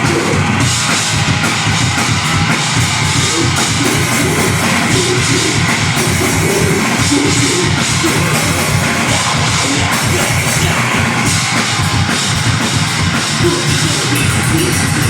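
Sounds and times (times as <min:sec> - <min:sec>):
distorted guitar and bass: 0:00.0 - 0:15.0
fast dense drumming: 0:00.0 - 0:15.0.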